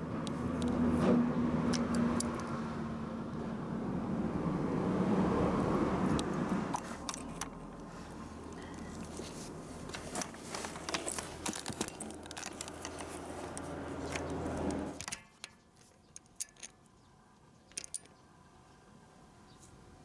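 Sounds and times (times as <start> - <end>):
light clicks and rattles: 5.6 - 18.2.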